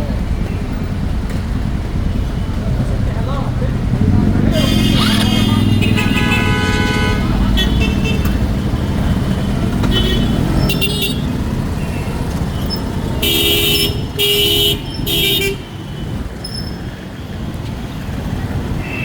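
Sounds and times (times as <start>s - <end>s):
road traffic rumble: 0.0s - 19.0s
vehicle horn honking: 4.5s - 8.6s, 9.4s - 12.1s, 13.2s - 16.1s.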